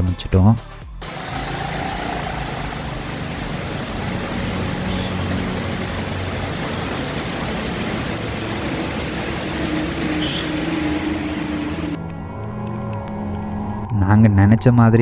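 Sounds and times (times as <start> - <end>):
motorcycle engine humming: 0.9 - 13.9
heavy rain: 1.0 - 12.0.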